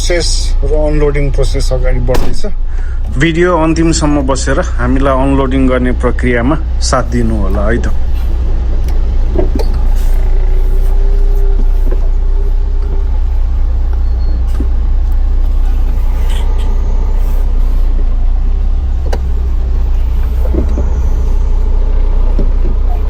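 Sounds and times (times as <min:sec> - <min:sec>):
diesel truck engine rumbling: 0:00.0 - 0:23.0
steady tone: 0:06.6 - 0:23.0.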